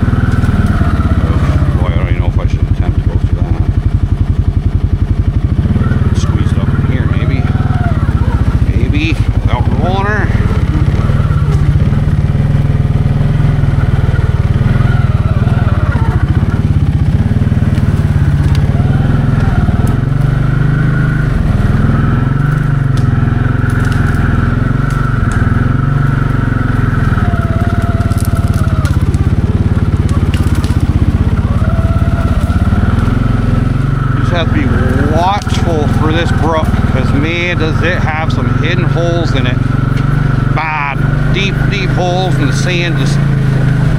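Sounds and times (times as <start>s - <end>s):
crackling and snapping: 0.0s - 6.4s, 10.4s - 37.3s
atv engine running: 0.0s - 43.9s.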